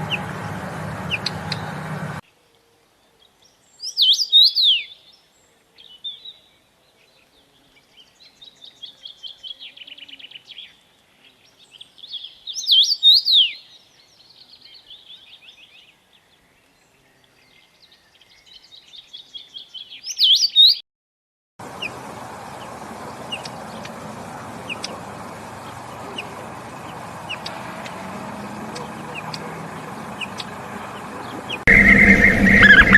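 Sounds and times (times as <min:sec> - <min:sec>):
outdoor background hiss: 0:00.0 - 0:20.5, 0:21.6 - 0:31.8
songbird singing: 0:00.0 - 0:20.8, 0:21.6 - 0:32.9
faint high chirps: 0:31.3 - 0:32.9.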